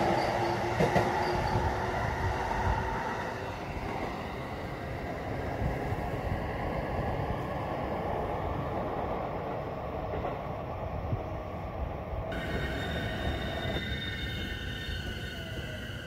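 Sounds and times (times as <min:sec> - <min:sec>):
high steady squealing tones: 0:00.0 - 0:04.7, 0:12.3 - 0:16.0
train wheels rumbling on rails: 0:00.0 - 0:16.0.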